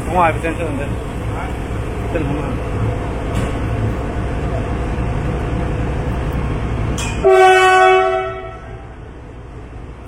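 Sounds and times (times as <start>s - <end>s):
steady low rumble: 0.0s - 10.0s
train horn blast: 7.2s - 9.0s.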